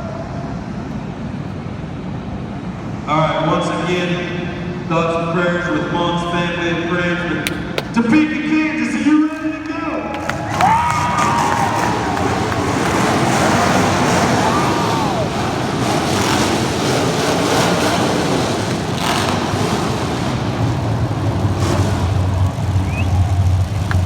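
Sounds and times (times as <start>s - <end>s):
car engines revving: 9.3s - 24.0s
low engine hum: 9.3s - 24.0s.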